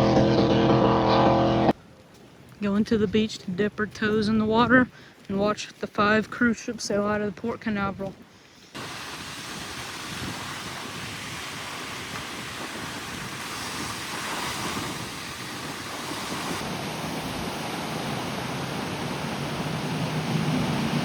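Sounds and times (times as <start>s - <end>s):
wind rumbling on microphone: 2.7s - 21.0s
ocean waves on beach: 8.4s - 21.0s.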